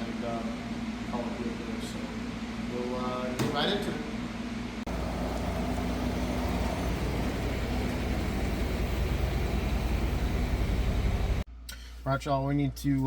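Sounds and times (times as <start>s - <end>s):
vehicle engine rumbling: 4.9s - 11.5s.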